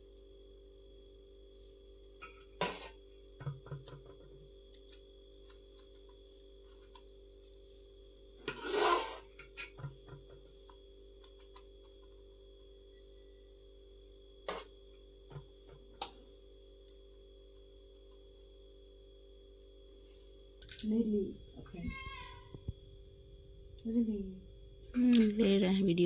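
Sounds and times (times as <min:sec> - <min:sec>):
faint steady hum: 0:00.0 - 0:26.0
rubbing and scraping: 0:08.4 - 0:09.4.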